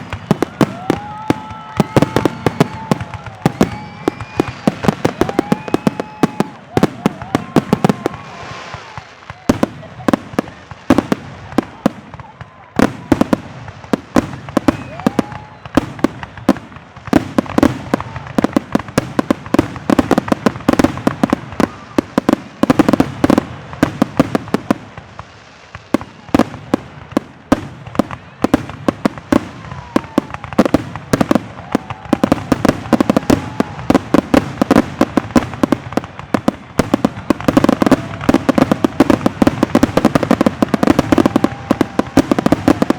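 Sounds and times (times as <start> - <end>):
fireworks booming and crackling: 0.0 - 42.9.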